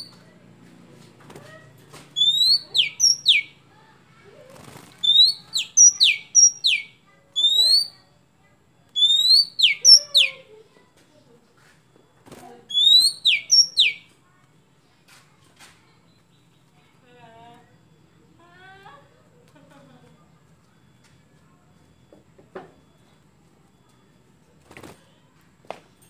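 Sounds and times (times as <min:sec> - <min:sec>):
bird singing whistled phrases: 0:02.2 - 0:03.6, 0:05.0 - 0:08.1, 0:09.0 - 0:10.4, 0:12.7 - 0:14.1.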